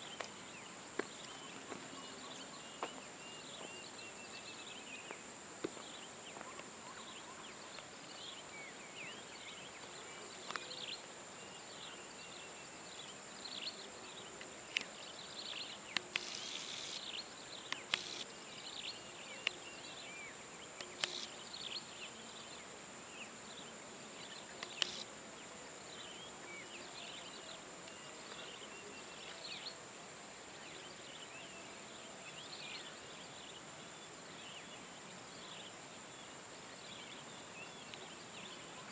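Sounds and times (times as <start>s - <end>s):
birds chirping: 0.0s - 38.9s
insects droning: 0.0s - 38.9s
sharp clicks: 15.5s - 17.1s, 17.7s - 18.3s, 20.8s - 21.3s, 24.5s - 25.1s.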